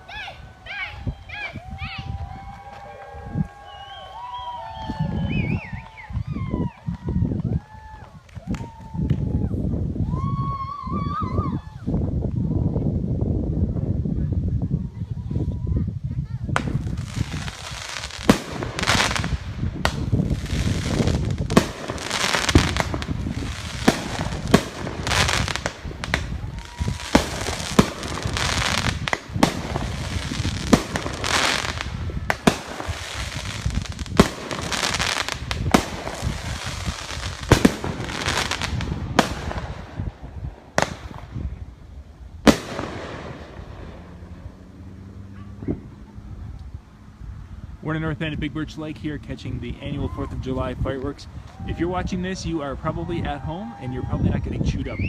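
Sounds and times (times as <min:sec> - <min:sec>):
fireworks bangs: 0:16.5 - 0:44.6
rush of firework bursts: 0:16.5 - 0:44.6.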